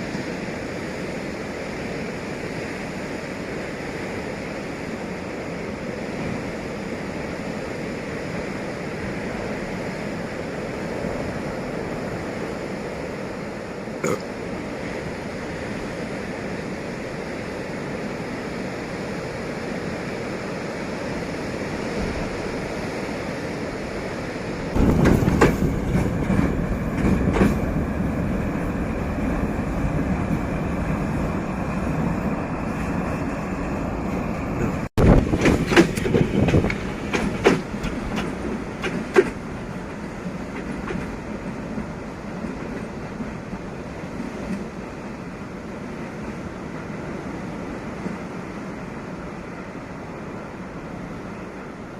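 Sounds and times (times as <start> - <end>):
wheels clacking over rail joints: 24.8 - 27.8, 34.6 - 43.4.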